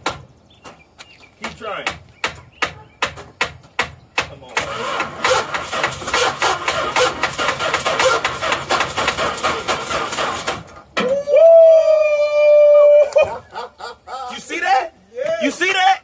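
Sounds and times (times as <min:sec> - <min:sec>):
starter cranking engine: 0:04.6 - 0:10.8.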